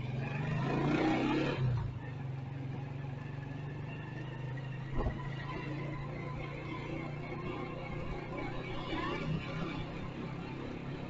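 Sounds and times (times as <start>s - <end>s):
road noise: 0.0s - 11.0s
short thump: 4.9s - 5.2s.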